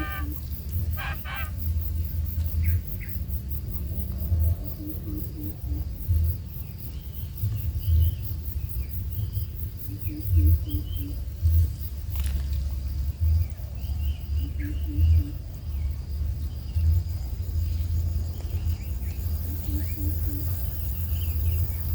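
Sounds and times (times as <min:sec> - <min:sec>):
bird-like chirps: 0:00.0 - 0:01.7
insects trilling: 0:00.0 - 0:21.9
low rumble with bumps: 0:07.3 - 0:19.6.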